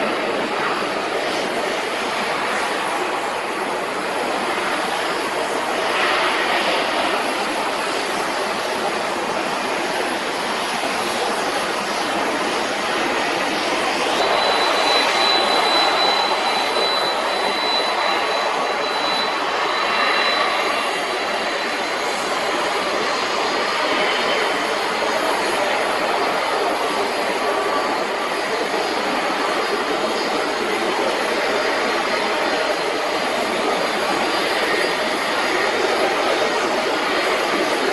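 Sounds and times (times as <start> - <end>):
jet engines running: 0.0 - 37.9
thin high whine: 13.2 - 26.5.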